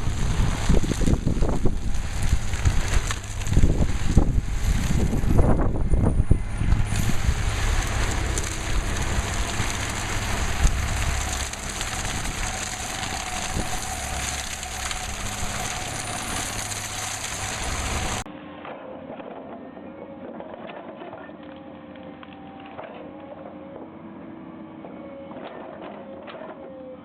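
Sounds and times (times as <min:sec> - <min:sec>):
stump grinder running: 0:00.0 - 0:18.3.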